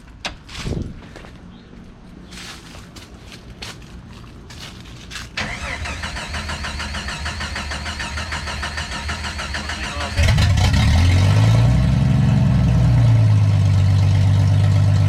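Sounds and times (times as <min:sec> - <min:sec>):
loud engine running: 0:05.4 - 0:15.0.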